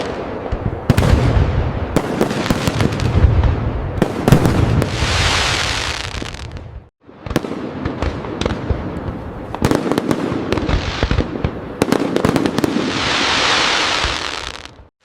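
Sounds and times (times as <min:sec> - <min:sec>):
fireworks banging: 0:00.0 - 0:14.9
fireworks crackling hiss: 0:02.0 - 0:06.8, 0:09.1 - 0:14.9.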